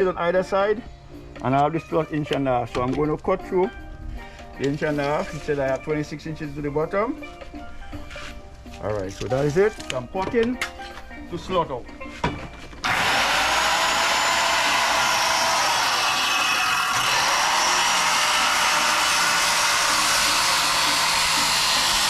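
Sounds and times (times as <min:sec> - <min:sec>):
circular saw cutting wood: 0:12.8 - 0:22.0.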